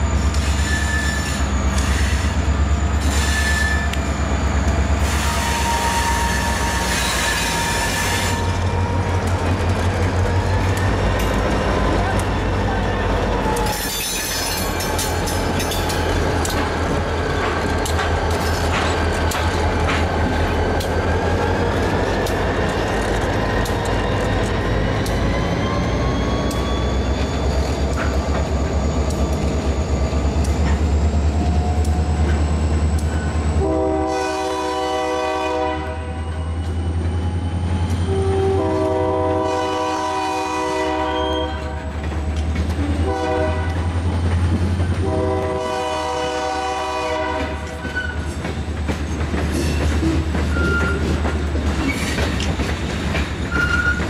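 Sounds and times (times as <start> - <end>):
locomotive horn blasts: 5.2 - 8.6, 33.6 - 36.3, 38.1 - 41.8, 43.0 - 43.9, 45.0 - 47.8
train wheel clicks: 13.4 - 33.4, 41.7 - 43.0, 47.4 - 54.0.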